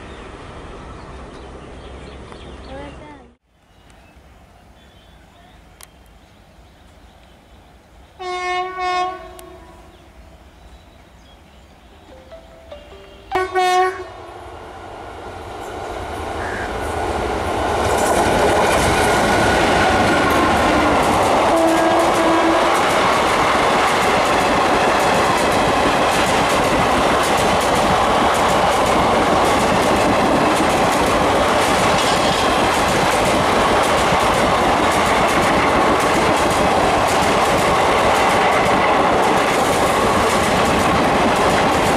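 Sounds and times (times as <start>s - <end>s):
train passing rumble: 0.0s - 41.9s
locomotive horn blasts: 8.2s - 9.9s, 12.8s - 14.3s, 21.5s - 22.7s.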